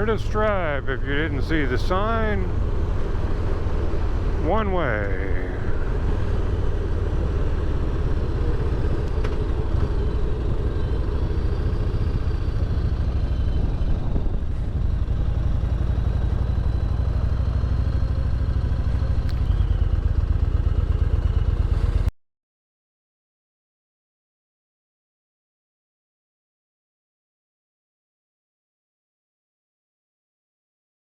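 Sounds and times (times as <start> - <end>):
motorcycle engine running: 0.0 - 22.1
road and wind noise: 0.0 - 22.1.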